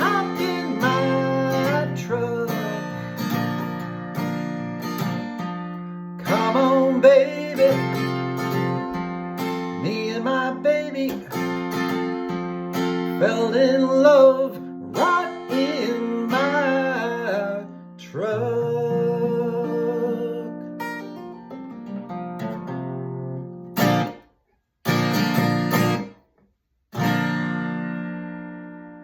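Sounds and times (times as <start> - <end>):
person singing: 0.0 - 3.6, 6.2 - 8.9, 9.7 - 11.8, 13.2 - 20.8
acoustic guitar strumming: 0.0 - 26.3, 26.9 - 29.0.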